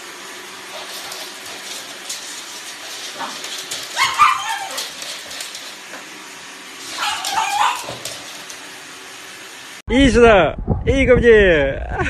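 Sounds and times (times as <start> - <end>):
puppy barking: 2.9 - 5.5, 6.8 - 8.5.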